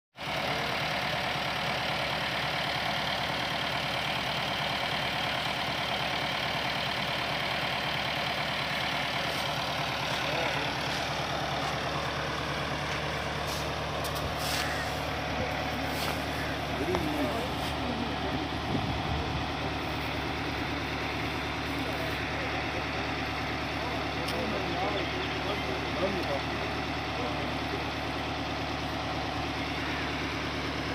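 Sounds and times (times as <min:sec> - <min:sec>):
tractor diesel engine running: 0:00.2 - 0:30.9
grain thresher rushing noise: 0:08.6 - 0:12.1, 0:12.7 - 0:20.5.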